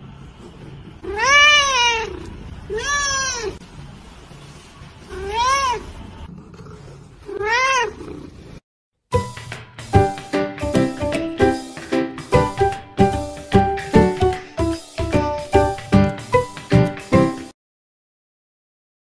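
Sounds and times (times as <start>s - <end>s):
cat meowing: 1.0s - 3.6s, 5.1s - 5.9s, 7.3s - 8.1s, 15.0s - 15.7s.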